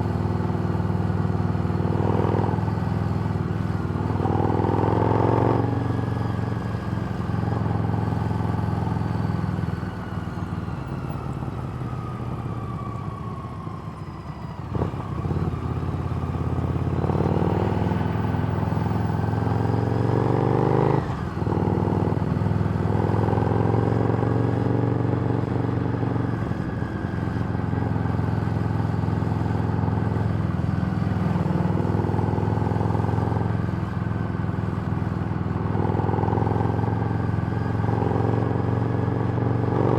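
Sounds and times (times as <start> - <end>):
motorcycle engine while riding: 0.0 - 39.9.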